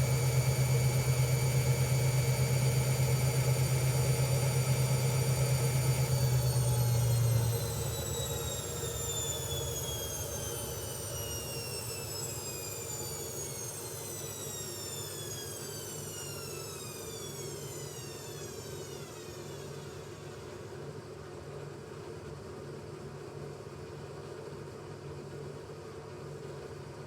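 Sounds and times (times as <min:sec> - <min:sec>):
washing machine motor winding down: 0:00.0 - 0:21.0.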